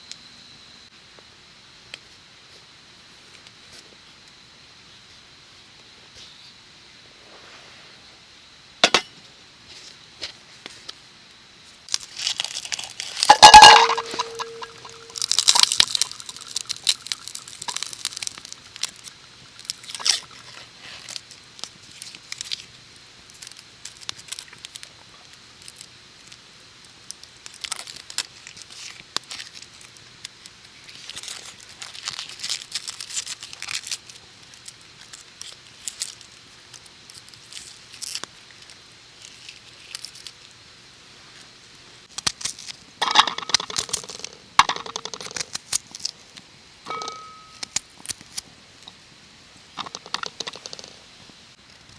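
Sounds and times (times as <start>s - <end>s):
crinkly rustling: 11.9s - 26.4s, 27.1s - 40.6s.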